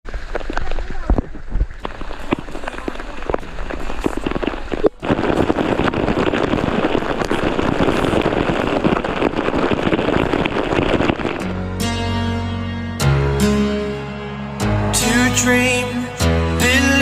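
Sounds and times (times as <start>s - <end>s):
rushing water: 0.1s - 12.1s
heavy rain: 0.1s - 12.4s, 13.1s - 17.0s.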